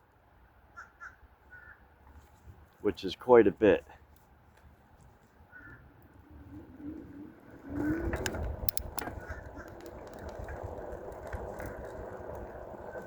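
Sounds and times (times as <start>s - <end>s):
wind and tyre rumble: 0.0s - 13.0s
sharp clicks: 8.1s - 10.6s.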